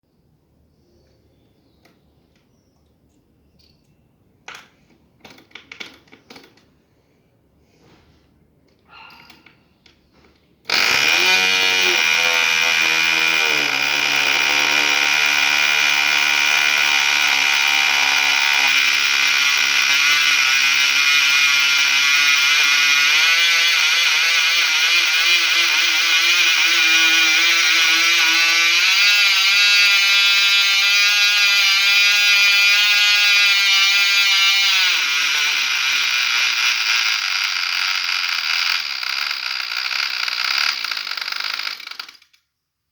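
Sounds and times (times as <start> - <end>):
small engine high-pitched buzz: 10.7 - 42.3.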